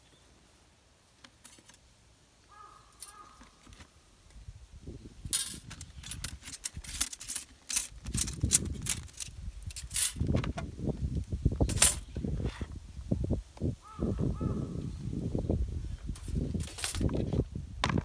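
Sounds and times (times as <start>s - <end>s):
metal parts clicking and clattering: 1.3s - 1.8s, 3.0s - 3.8s, 5.2s - 10.5s, 11.7s - 12.1s, 16.2s - 17.4s.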